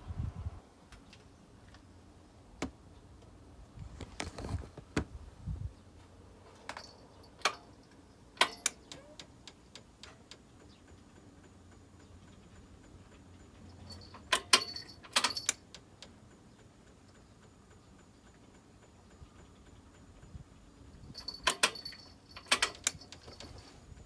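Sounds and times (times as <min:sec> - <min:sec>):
metal tools clicking and clinking: 0:06.6 - 0:09.2, 0:13.6 - 0:15.8, 0:21.0 - 0:23.7.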